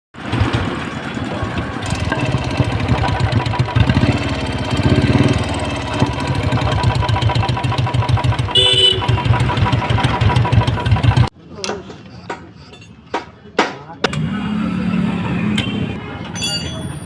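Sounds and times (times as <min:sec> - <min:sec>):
engine ticking: 0:00.2 - 0:11.3
motorcycle engine idling: 0:00.2 - 0:11.3.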